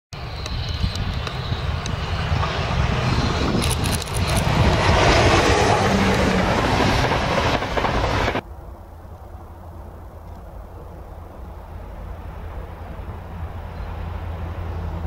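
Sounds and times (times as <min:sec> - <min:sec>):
train wheel and rail noise: 0:00.2 - 0:15.0
sharp clicks: 0:03.6 - 0:04.8.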